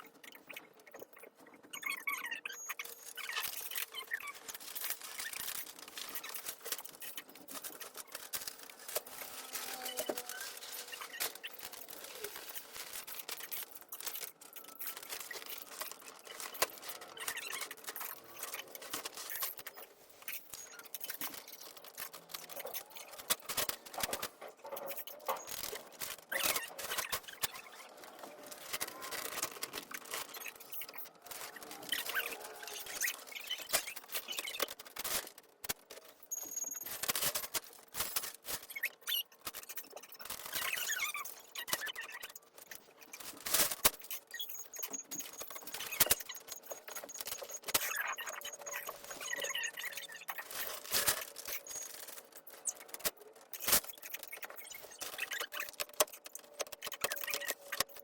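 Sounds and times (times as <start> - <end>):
crackling and rustling handling: 0.2 - 58.0.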